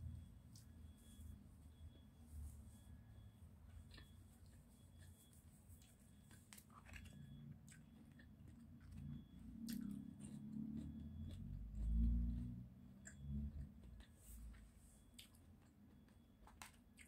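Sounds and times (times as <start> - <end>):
crunchy chewing: 3.7 - 17.0.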